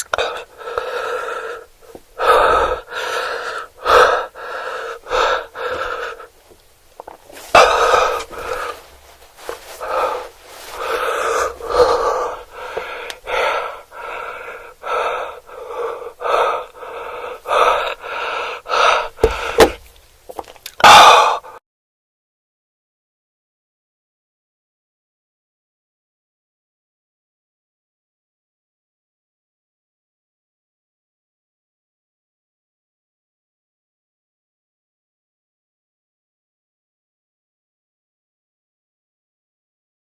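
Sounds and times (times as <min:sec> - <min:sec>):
person gasping for breath: 0:00.0 - 0:06.4, 0:07.4 - 0:19.9, 0:20.7 - 0:21.6.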